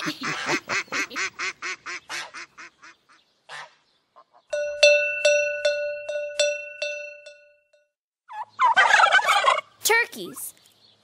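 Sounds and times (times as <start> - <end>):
cowbell ringing: 4.5 - 8.0
turkey gobbling: 8.3 - 9.8.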